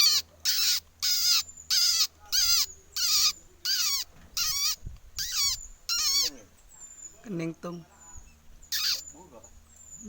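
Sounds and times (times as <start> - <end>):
bird calling with falling notes: 8.2 - 10.0.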